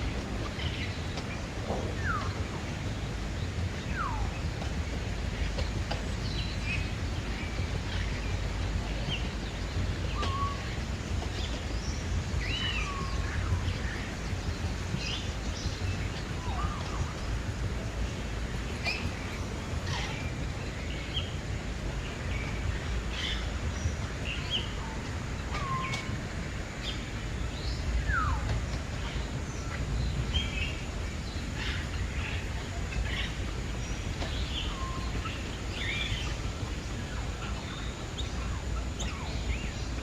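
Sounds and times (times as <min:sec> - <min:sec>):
low background rumble: 0:00.0 - 0:40.0
birds chirping and calling: 0:30.4 - 0:40.0.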